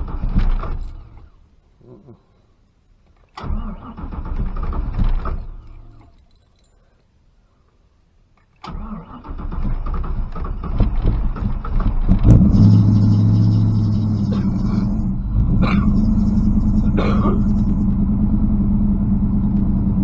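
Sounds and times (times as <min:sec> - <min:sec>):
engine starter cranking: 0:00.0 - 0:01.3, 0:03.3 - 0:06.3, 0:08.6 - 0:18.0
car engine idling: 0:09.3 - 0:20.0.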